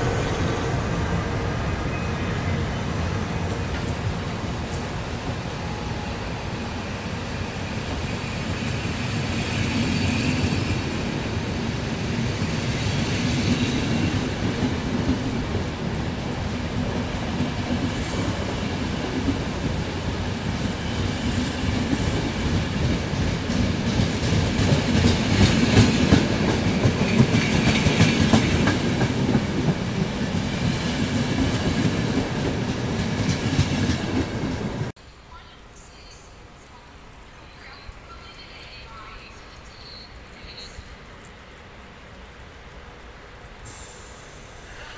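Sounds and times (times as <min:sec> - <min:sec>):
train wheels clattering: 0:12.4 - 0:34.9.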